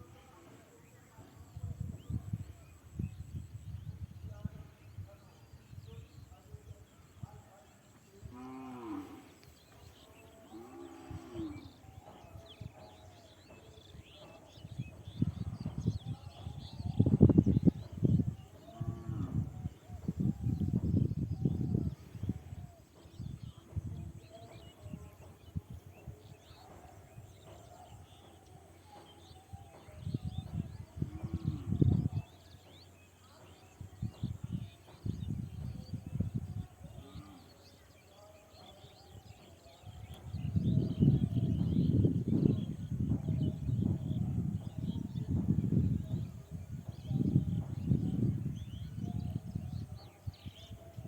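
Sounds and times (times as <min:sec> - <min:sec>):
birds chirping: 0:00.0 - 0:51.0.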